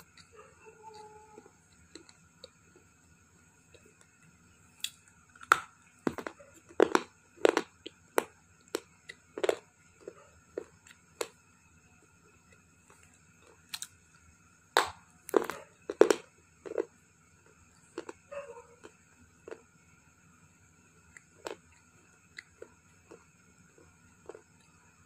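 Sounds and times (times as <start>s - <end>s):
stone crunching between teeth: 4.8s - 11.4s, 14.8s - 16.9s, 17.5s - 19.6s, 21.2s - 24.8s.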